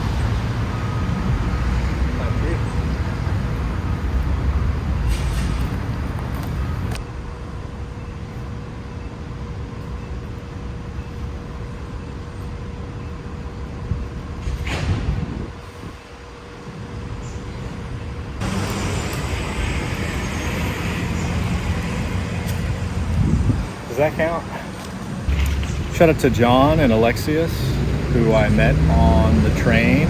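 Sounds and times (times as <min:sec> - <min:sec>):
faint constant hum: 0:00.0 - 0:30.0
motor vehicle rumble: 0:17.8 - 0:30.0.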